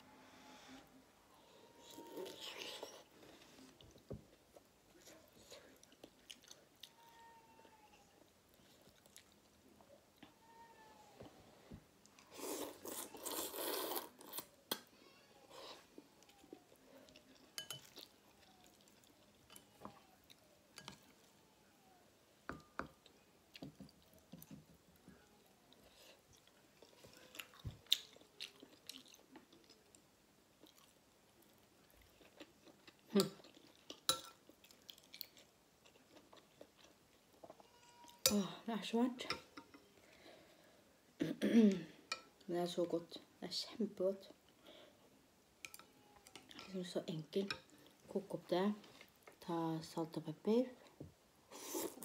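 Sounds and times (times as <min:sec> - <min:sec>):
chewing and mouth noises: 0:25.7 - 0:30.0.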